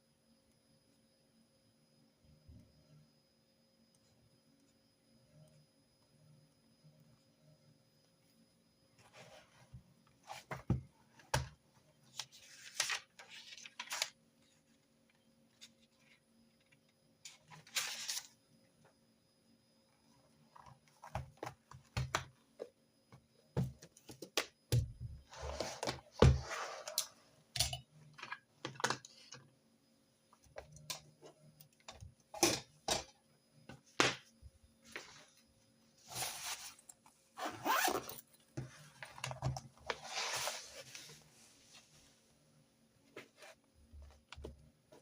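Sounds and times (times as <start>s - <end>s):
paper rustling: 12.2s - 14.2s, 17.5s - 18.3s.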